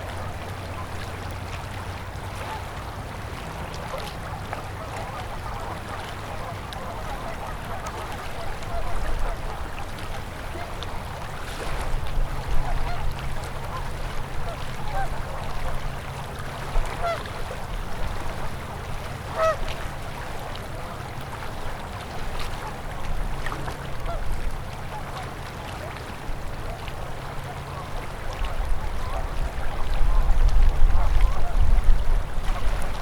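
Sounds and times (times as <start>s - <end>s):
flowing river water: 0.0s - 33.0s
waterfowl calling: 3.7s - 10.8s, 12.4s - 16.1s, 16.8s - 17.6s, 19.2s - 19.8s, 24.0s - 24.2s.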